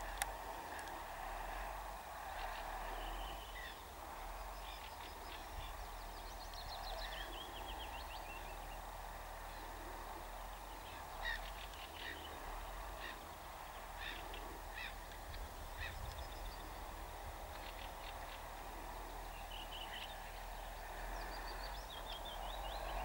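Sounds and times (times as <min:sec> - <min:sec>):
low steady rumble: 0:00.0 - 0:23.0
birds chirping and calling: 0:10.6 - 0:18.6.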